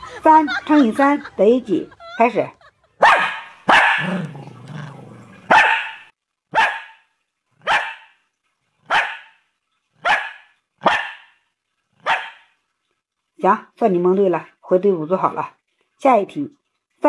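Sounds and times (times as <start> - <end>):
small dog barking: 3.0 - 4.4, 5.5 - 8.2, 8.8 - 9.4, 10.0 - 11.4, 12.0 - 12.5
dog growling: 4.0 - 5.5.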